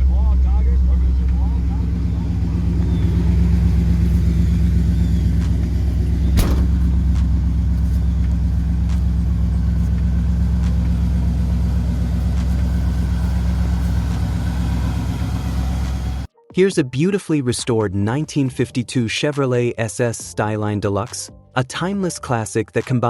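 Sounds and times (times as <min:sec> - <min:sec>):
car engine idling: 0:00.0 - 0:16.3
sharp click: 0:06.4 - 0:06.9.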